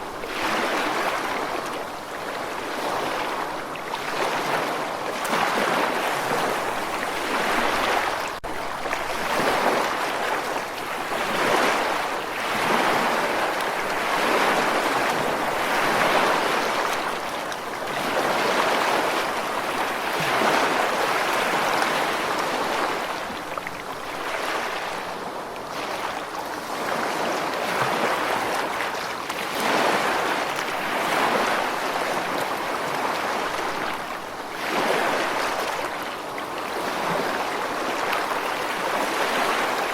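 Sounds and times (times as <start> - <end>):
ocean surf washing: 0.0 - 39.9.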